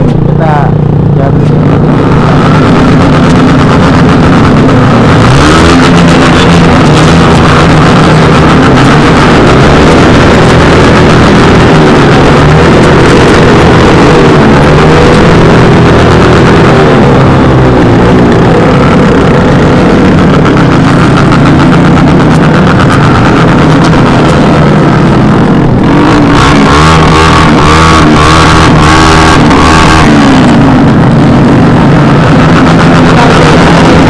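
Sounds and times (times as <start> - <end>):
loud motorcycle exhaust: 0.0 - 34.0.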